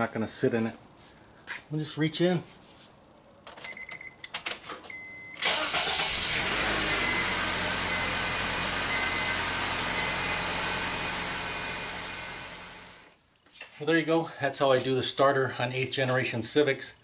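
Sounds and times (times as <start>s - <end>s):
car engine starting and idling: 5.4s - 13.2s.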